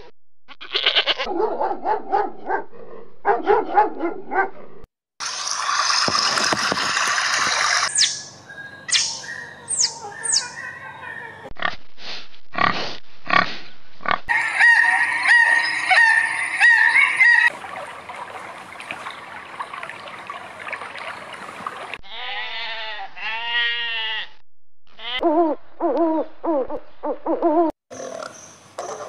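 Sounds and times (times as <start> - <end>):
water-like noise: 5.2 - 8.0, 14.3 - 22.0
high pulsing squeal: 14.3 - 17.5
rising-and-falling animal calls: 14.3 - 17.5.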